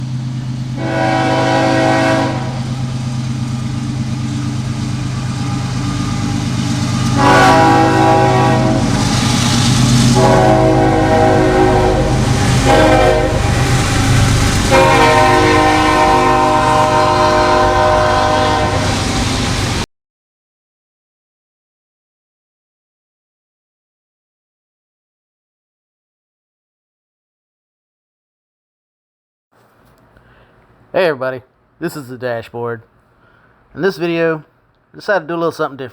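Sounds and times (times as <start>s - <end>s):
locomotive rumble: 0.0s - 19.8s
locomotive horn blasts: 0.8s - 2.8s, 5.1s - 9.4s, 10.1s - 19.8s.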